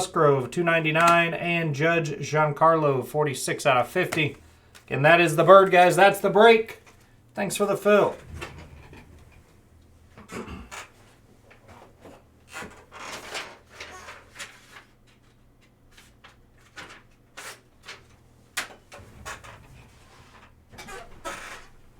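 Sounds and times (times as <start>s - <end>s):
cards and packaging rustling: 12.1s - 18.2s.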